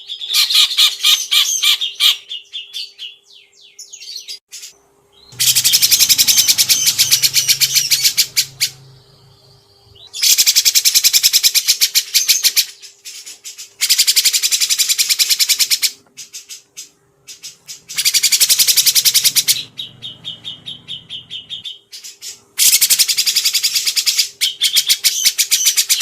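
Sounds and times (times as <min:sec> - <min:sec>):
faint steady hum: 0:02.2 - 0:26.0
songbird trilling: 0:05.1 - 0:12.8, 0:17.3 - 0:26.0.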